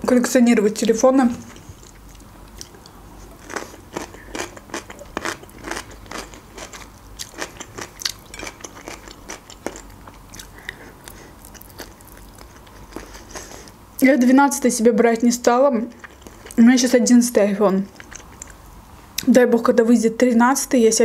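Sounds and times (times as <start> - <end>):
person chewing crunchy food: 1.5 - 13.8, 15.9 - 16.6, 17.9 - 18.6.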